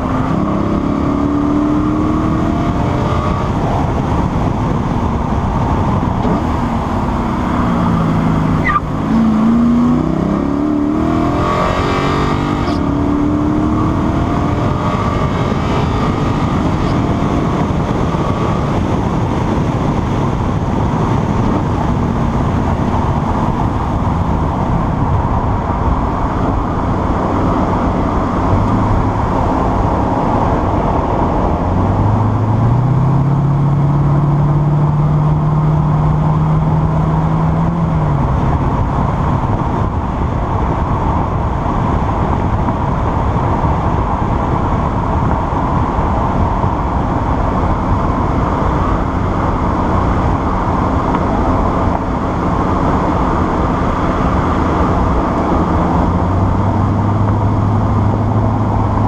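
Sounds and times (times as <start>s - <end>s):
car engine at speed: 0.0s - 59.0s
road and wind noise: 0.0s - 59.0s.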